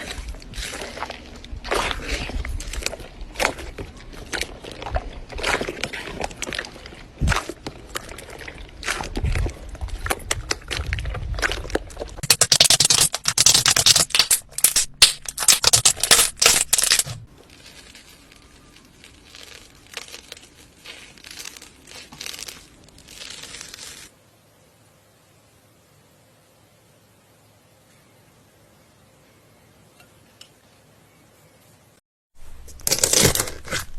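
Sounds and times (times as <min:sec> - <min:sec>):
slime squeezed by hand crackling: 0:00.0 - 0:24.1.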